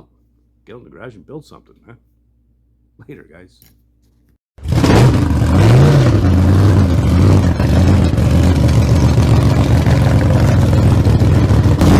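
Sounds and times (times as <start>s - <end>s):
engine running steadily: 4.6s - 11.9s.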